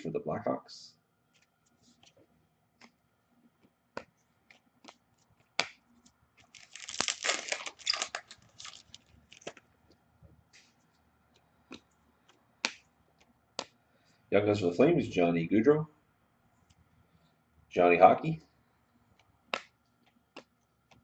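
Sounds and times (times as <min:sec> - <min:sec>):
foil wrapper tearing and crinkling: 0:06.5 - 0:09.5
cards clicking and snapping: 0:19.2 - 0:21.0.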